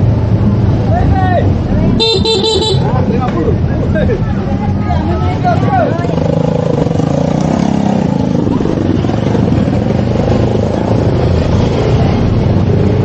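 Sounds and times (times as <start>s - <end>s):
motorcycle engine running: 1.7s - 3.3s.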